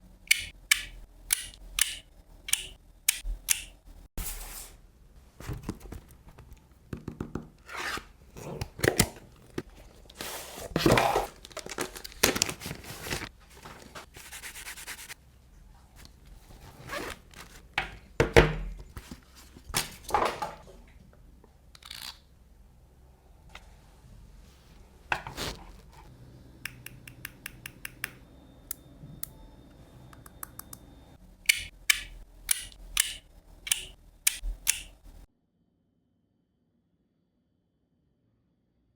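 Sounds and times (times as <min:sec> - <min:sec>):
sharp clicks: 0:00.3 - 0:03.8, 0:26.7 - 0:28.8, 0:31.5 - 0:35.0
packaging rustling and tearing: 0:08.5 - 0:14.1.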